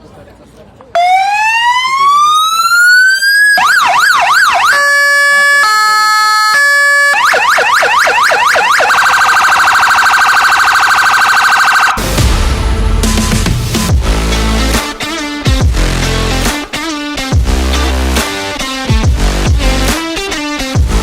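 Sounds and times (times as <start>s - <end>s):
fire engine siren: 1.0s - 12.1s
loud music: 12.0s - 21.0s.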